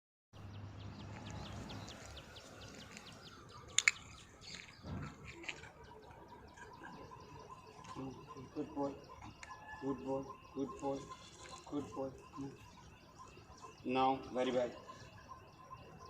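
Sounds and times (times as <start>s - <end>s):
small birds chirping: 0.4s - 16.0s
sharp clicks: 3.7s - 4.8s.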